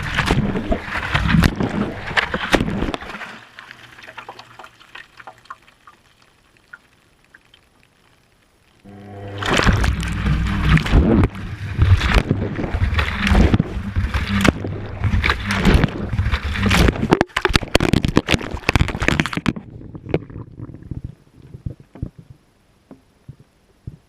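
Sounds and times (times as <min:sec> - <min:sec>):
water sloshing in washing machine drum: 0:09.2 - 0:19.5.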